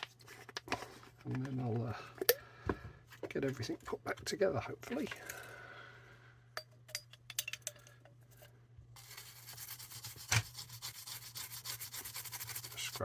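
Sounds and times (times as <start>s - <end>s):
scrubbing on circuit board: 9.0s - 13.0s.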